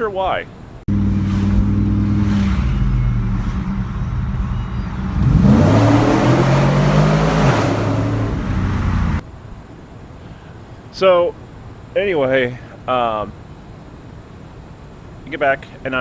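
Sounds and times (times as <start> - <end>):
engine revving with grinding noise: 0.9 - 9.2.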